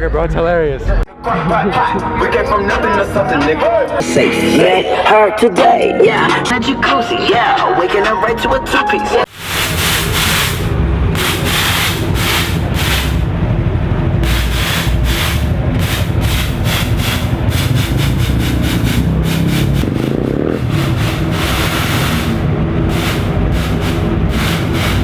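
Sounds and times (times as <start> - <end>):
car engine revving: 9.3 - 25.0
car engines running: 9.3 - 25.0.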